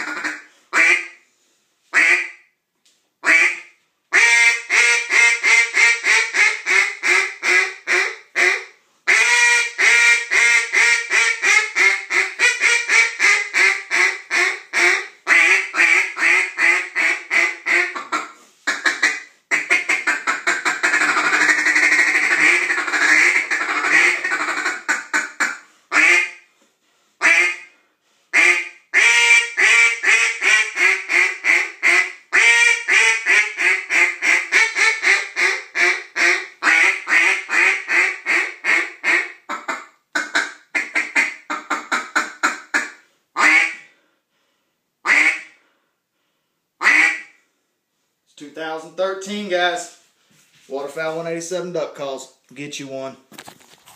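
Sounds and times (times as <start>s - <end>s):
duck call quacking: 0.0s - 1.2s, 2.0s - 2.4s, 3.2s - 26.4s, 27.2s - 43.9s, 45.0s - 45.6s, 46.8s - 47.4s.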